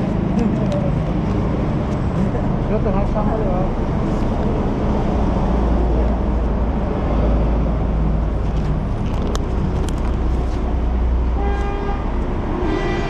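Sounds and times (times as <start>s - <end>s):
engine and traffic rumble: 0.0s - 13.0s
vehicle horn: 11.4s - 13.0s.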